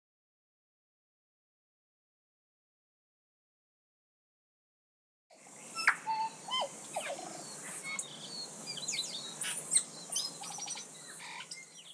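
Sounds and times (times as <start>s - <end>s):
faint hiss: 5.3s - 11.9s
birds chirping and whistling: 5.5s - 11.9s.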